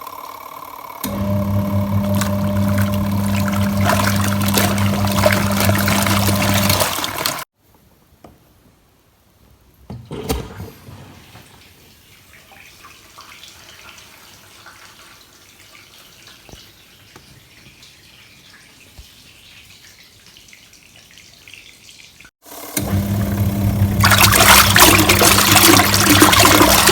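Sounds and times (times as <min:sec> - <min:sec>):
washing machine motor hum: 0:01.0 - 0:07.4, 0:22.5 - 0:26.9
water trickling and splashing: 0:01.6 - 0:07.5, 0:11.3 - 0:22.3, 0:23.7 - 0:26.9.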